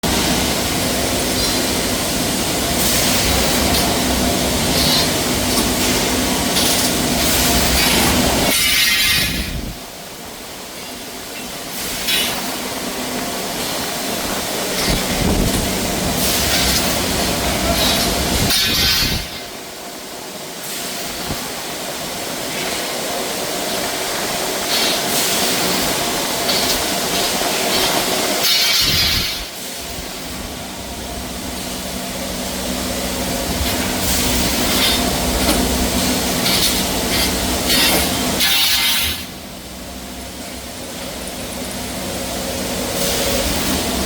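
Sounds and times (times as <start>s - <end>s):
metal-cutting hiss: 16.2s - 19.5s, 24.1s - 30.3s, 33.6s - 39.3s.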